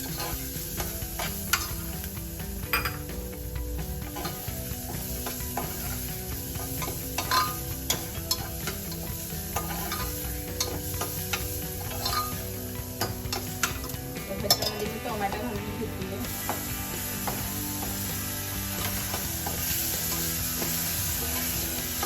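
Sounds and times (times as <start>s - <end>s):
food sizzling in hot oil: 0.0s - 22.0s
spatula clinking against pan: 6.6s - 13.9s.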